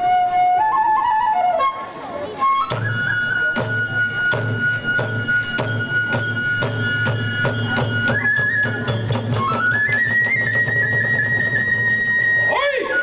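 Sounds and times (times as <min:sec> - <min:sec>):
bamboo flute: 0:00.0 - 0:13.0
hand cymbals: 0:02.2 - 0:12.6
taiko drum beating: 0:02.6 - 0:12.5.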